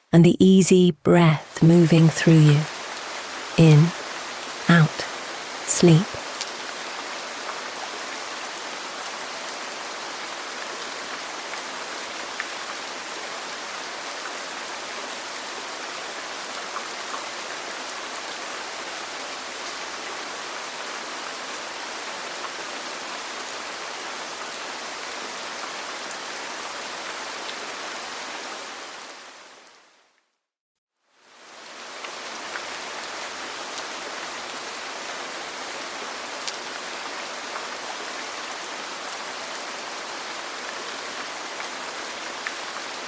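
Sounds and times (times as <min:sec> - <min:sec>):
rain falling on a roof: 0:02.6 - 0:30.1, 0:31.1 - 0:43.0.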